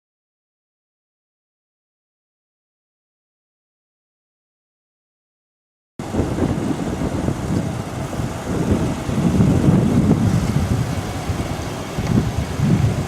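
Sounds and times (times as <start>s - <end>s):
wind buffeting microphone: 6.0s - 13.0s.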